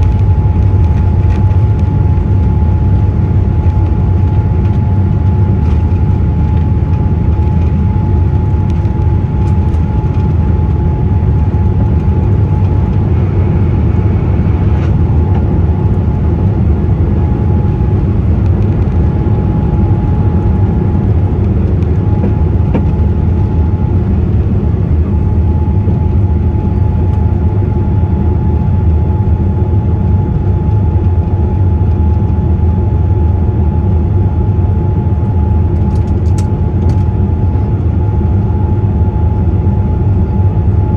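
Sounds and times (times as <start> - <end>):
thin steady whine: 0.0 - 30.4
airplane cabin rumble: 0.0 - 40.9.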